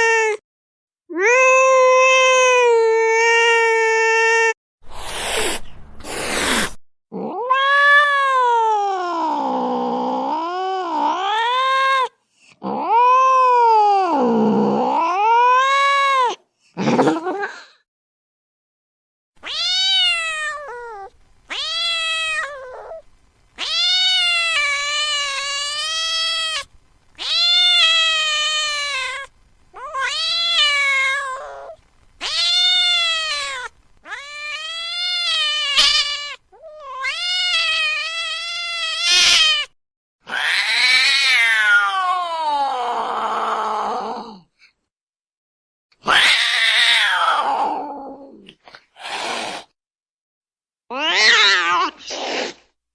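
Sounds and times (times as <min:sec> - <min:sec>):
cat meowing: 0:01.1 - 0:04.5, 0:07.2 - 0:09.6, 0:19.4 - 0:23.0, 0:23.6 - 0:42.7, 0:46.0 - 0:48.4, 0:50.9 - 0:52.5.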